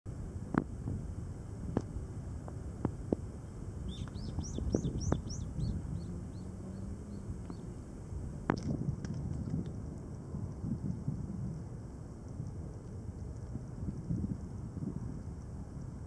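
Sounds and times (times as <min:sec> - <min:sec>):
wind rumble on microphone: 0:00.1 - 0:16.0
bird chirping: 0:03.4 - 0:07.9.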